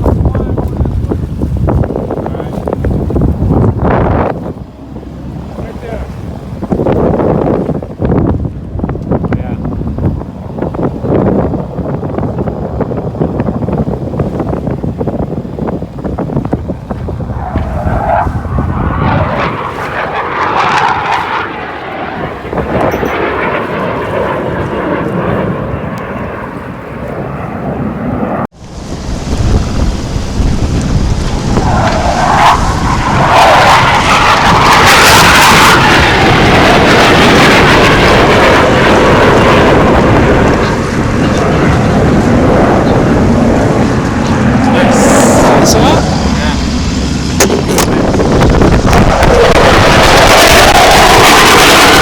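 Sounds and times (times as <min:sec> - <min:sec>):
jet aircraft flying past: 0:17.2 - 0:52.0.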